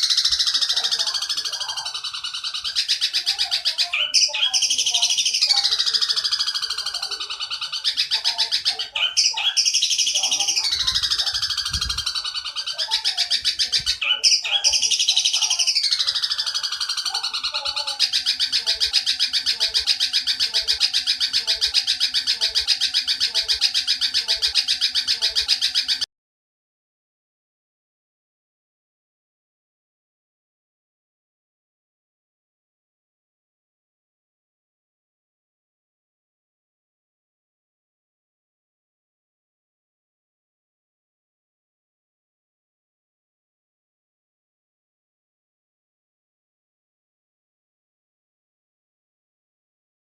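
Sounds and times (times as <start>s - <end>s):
sparrow chattering call: 0.0s - 26.1s.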